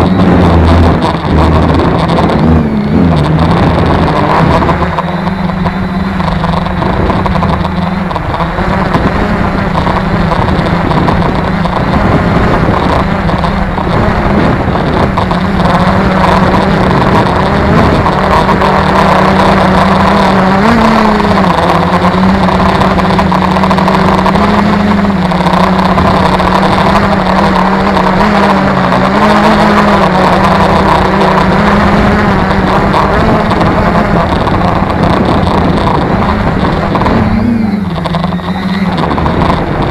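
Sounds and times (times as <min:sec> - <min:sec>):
drone propellers droning: 0:00.0 - 0:39.9
wind buffeting microphone: 0:00.0 - 0:39.9.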